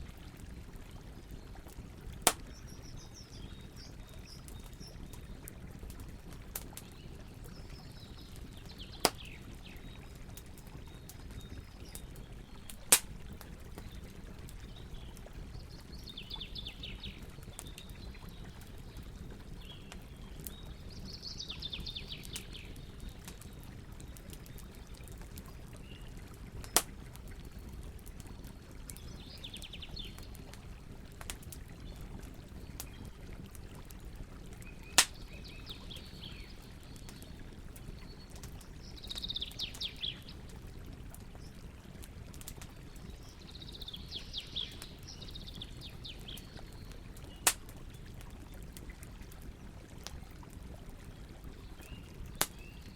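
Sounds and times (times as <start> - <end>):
campfire wood crackling: 0.0 - 52.9
fire popping loudly: 2.1 - 7.1, 10.4 - 15.8, 34.6 - 35.4, 46.2 - 48.8.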